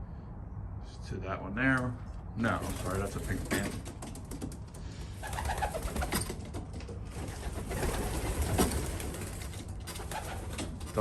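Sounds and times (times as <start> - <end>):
wing flutter and clicks: 2.6 - 11.0.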